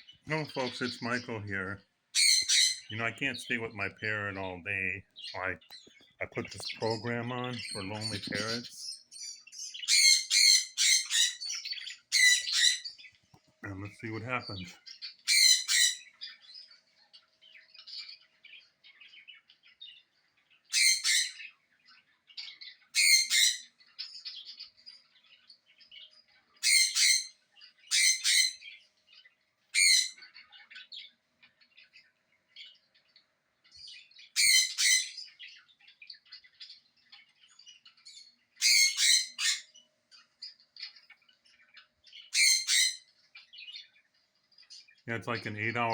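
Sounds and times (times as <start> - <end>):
birds chirping and twittering: 0.0 - 45.9
parrot squawking: 0.3 - 13.0, 13.7 - 16.1, 20.7 - 21.5, 23.0 - 23.7, 26.6 - 27.3, 27.9 - 28.8, 29.7 - 30.5, 34.4 - 35.3, 38.6 - 39.7, 42.3 - 43.1, 45.1 - 45.9.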